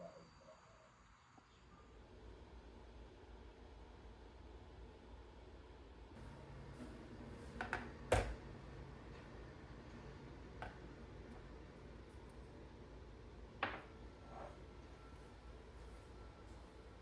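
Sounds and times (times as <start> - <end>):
steady low hum: 6.2 - 17.0.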